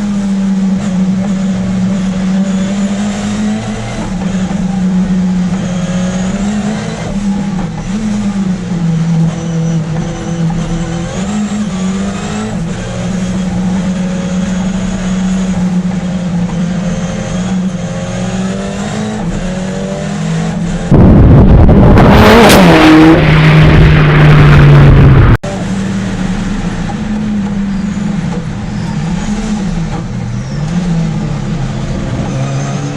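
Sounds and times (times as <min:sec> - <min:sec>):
car engine revving in cabin: 0:00.0 - 0:32.9
loud rough noise: 0:20.4 - 0:30.3.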